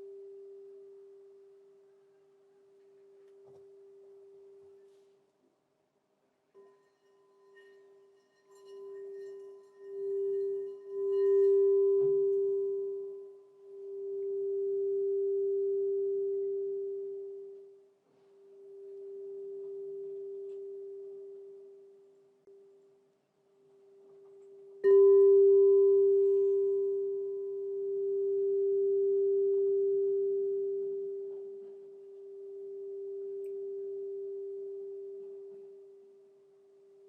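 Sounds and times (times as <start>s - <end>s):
crystal singing bowl ringing: 6.6s - 22.7s, 24.3s - 36.5s.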